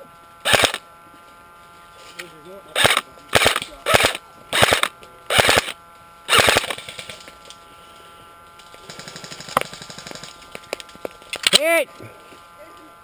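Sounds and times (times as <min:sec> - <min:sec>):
airsoft gun bursts: 0:00.4 - 0:00.8, 0:02.8 - 0:07.3, 0:08.8 - 0:10.5.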